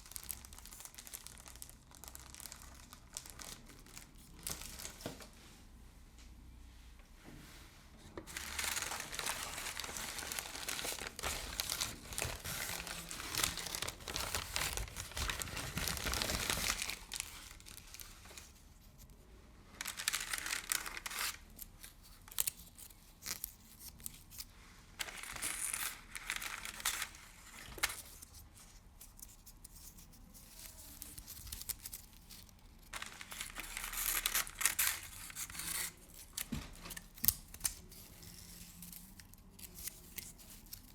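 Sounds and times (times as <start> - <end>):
hands crinkling material: 0.0 - 5.4, 8.2 - 19.0, 19.8 - 40.9.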